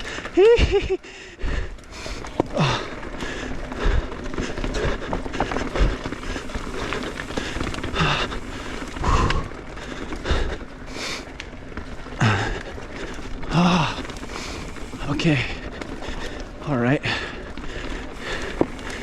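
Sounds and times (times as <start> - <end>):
steady rushing noise: 0.0 - 19.0
rider grunting: 2.2 - 9.6.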